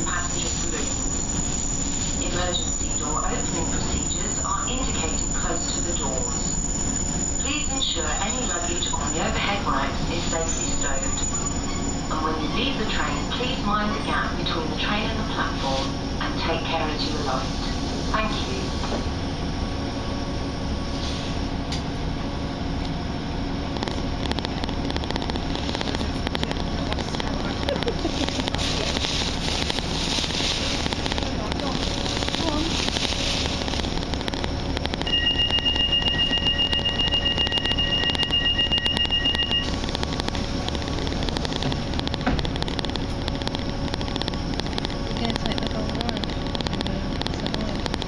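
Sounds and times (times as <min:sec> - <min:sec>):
train rumble and hum: 0:00.0 - 0:48.0
two-note electronic warning tone: 0:35.0 - 0:39.8.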